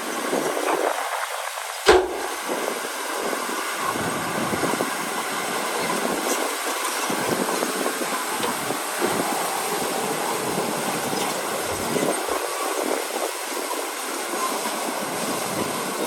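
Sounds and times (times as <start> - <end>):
sharp bang: 1.9 - 2.4
earthmoving machinery rumbling clatter: 1.9 - 2.6.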